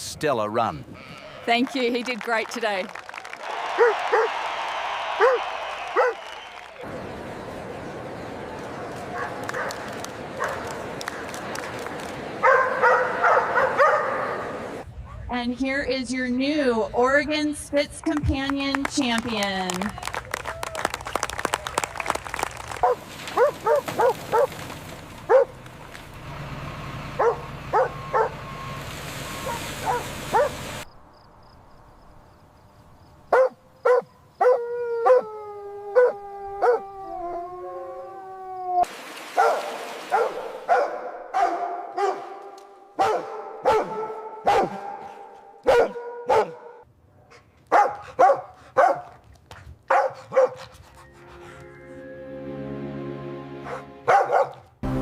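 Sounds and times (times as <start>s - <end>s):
dog barking: 3.8s - 4.3s, 5.2s - 5.4s, 6.0s - 6.2s, 10.4s - 10.6s, 12.4s - 14.4s, 22.8s - 24.5s, 25.3s - 25.5s, 27.2s - 28.4s, 29.4s - 30.6s, 33.3s - 35.3s, 36.0s - 36.8s, 39.4s - 46.8s, 47.7s - 49.2s, 49.9s - 50.7s, 53.7s - 54.7s
dog howling: 5.2s - 6.2s, 34.4s - 38.9s.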